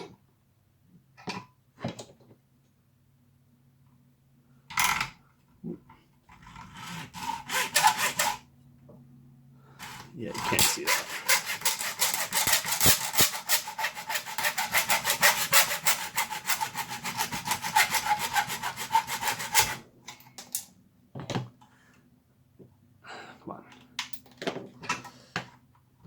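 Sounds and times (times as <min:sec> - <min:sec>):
hand tool scraping plastic: 0:06.3 - 0:08.4, 0:09.8 - 0:19.8.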